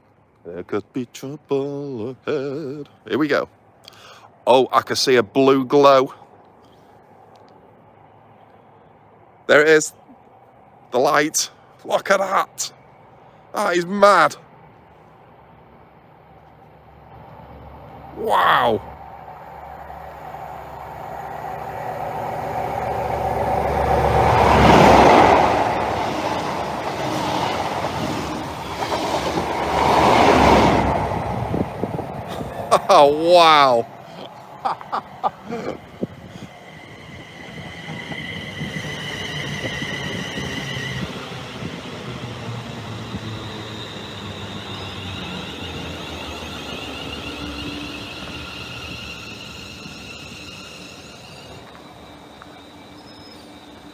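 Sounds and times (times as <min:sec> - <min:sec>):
train running noise: 0:00.0 - 0:53.9
diesel engine hum: 0:14.4 - 0:53.9
high whine: 0:16.4 - 0:53.9.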